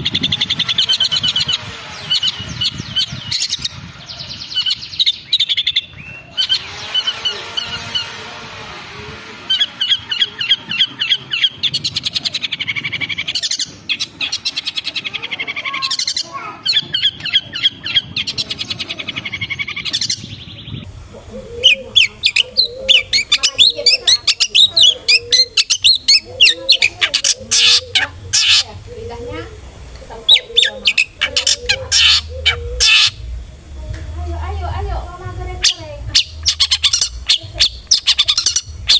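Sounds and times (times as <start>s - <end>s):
bird chattering: 0.0s - 33.6s, 34.3s - 38.9s
shrike calling sharp notes: 6.3s - 13.3s, 21.0s - 33.6s, 35.2s - 38.9s.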